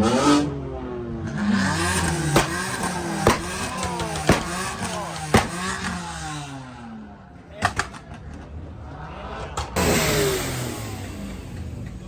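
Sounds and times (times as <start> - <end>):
car engine revving: 0.0 - 7.3, 8.0 - 12.0
exhaust cracks: 1.5 - 6.6, 9.3 - 12.0.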